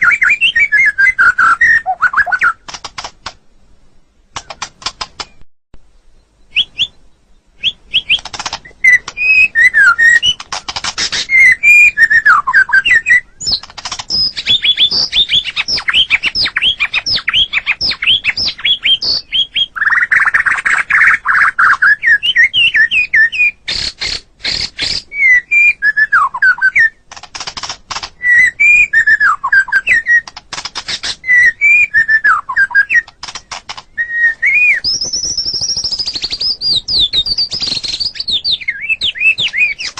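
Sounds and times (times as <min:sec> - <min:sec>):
bird singing whistled song: 0:00.0 - 0:02.6, 0:06.0 - 0:27.0, 0:28.2 - 0:30.4, 0:31.0 - 0:33.2, 0:33.8 - 0:39.9.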